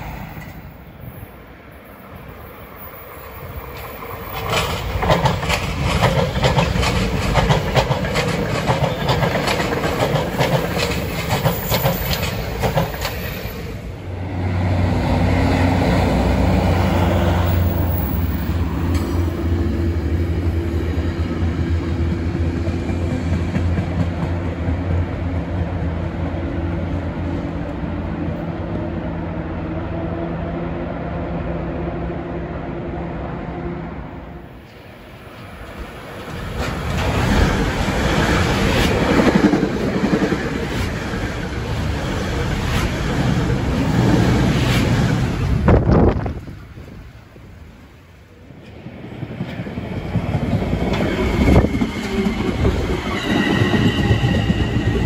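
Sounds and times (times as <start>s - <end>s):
train low drone: 0.0s - 55.0s
train wheels clicking over rail joints: 3.6s - 13.7s.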